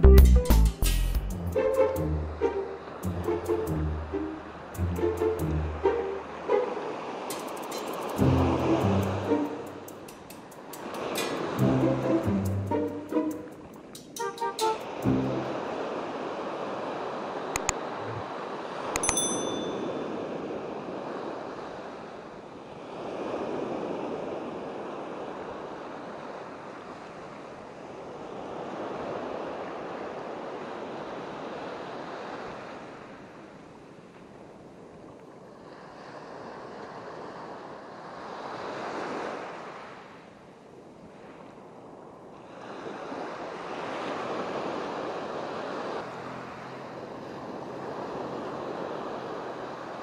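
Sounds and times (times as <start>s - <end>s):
surf breaking on shore: 14.6s - 22.2s
short bright ding: 19.0s - 20.0s.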